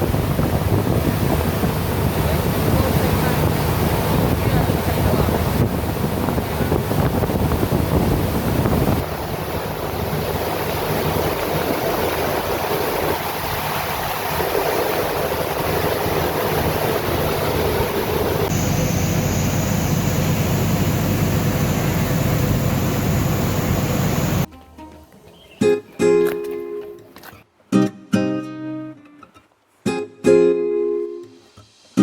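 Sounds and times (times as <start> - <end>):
steady low hum: 0.0 - 24.5
wind noise on microphone: 0.0 - 24.5.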